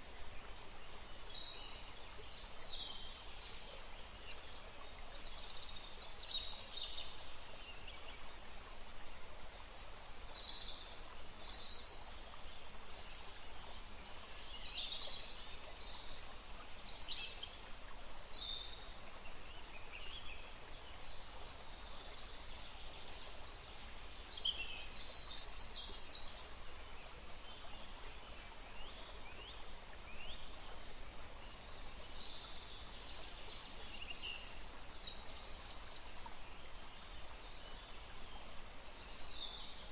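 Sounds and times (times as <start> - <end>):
rushing water: 0.0 - 39.9
wind: 0.0 - 39.9.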